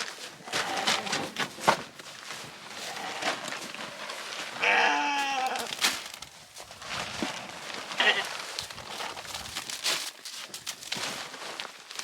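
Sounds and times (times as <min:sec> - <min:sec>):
rustling and crunching: 0:00.0 - 0:12.0
sheep bleating: 0:04.6 - 0:05.7, 0:08.0 - 0:08.3.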